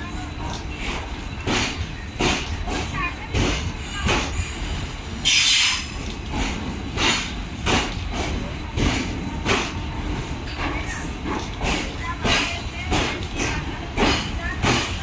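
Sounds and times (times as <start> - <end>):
train wheels clacking over joints: 0.4 - 15.0.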